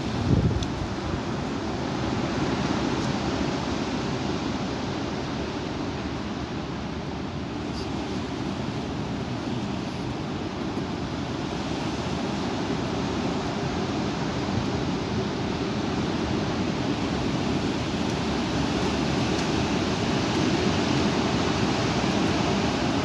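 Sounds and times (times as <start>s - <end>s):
strong wind rushing: 0.0s - 1.3s.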